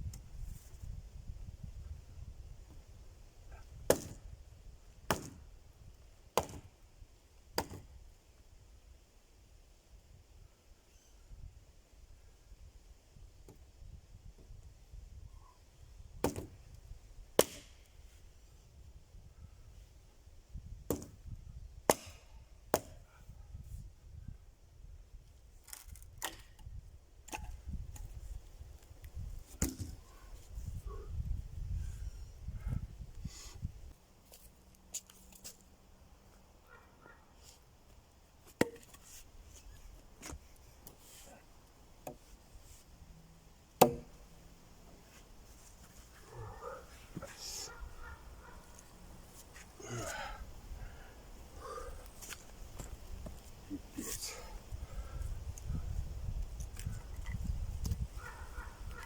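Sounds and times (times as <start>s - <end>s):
axe chopping wood: 3.9s - 4.2s, 5.1s - 5.4s, 6.4s - 6.7s, 7.5s - 7.9s, 16.2s - 16.5s, 17.4s - 17.8s, 20.9s - 21.2s, 21.9s - 23.0s, 38.5s - 39.0s, 43.8s - 44.2s.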